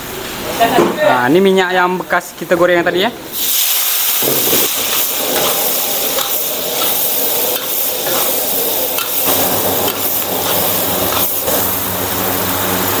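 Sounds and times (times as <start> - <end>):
paste sizzling in hot oil: 3.3 - 13.0
metal spatula scraping a wok: 4.4 - 11.8
steady low hum: 4.4 - 13.0.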